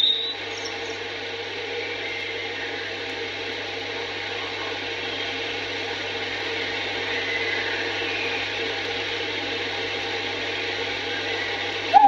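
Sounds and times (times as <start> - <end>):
low mains hum: 0.0 - 12.0.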